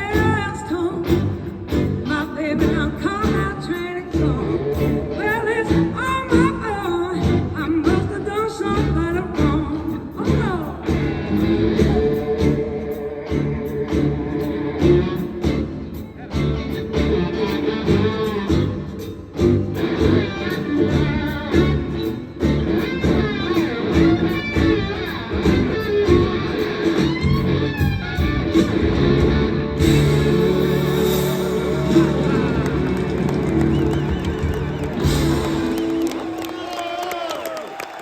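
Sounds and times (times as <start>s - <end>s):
live blues band playing: 0.0s - 36.6s.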